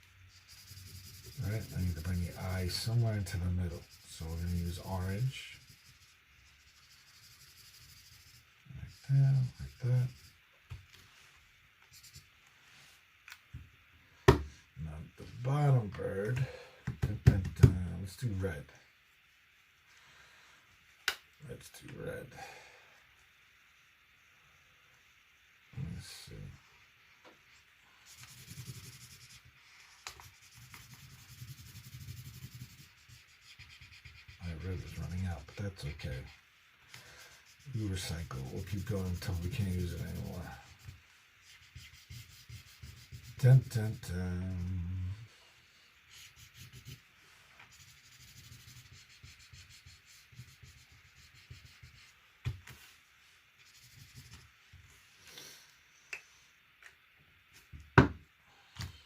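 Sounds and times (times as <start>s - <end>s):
marker scratching on paper: 0.3s - 10.4s, 11.9s - 12.3s, 28.0s - 36.4s, 37.2s - 44.7s, 46.0s - 47.0s, 47.7s - 52.2s, 53.6s - 54.5s
knock: 58.0s - 58.2s.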